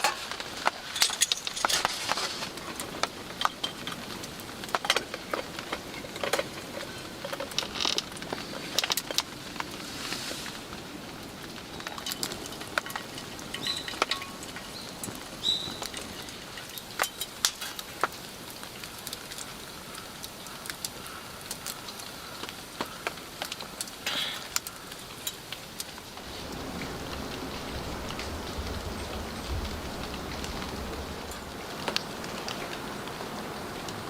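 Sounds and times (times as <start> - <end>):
campfire crackling and popping: 0.0 - 34.0
light rain hiss: 0.0 - 34.0.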